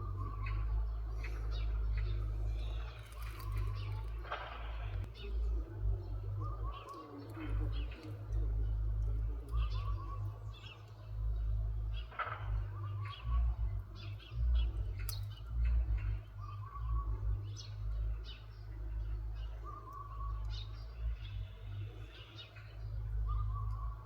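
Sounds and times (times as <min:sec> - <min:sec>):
loud low rumble: 0:00.0 - 0:06.8, 0:07.4 - 0:19.7.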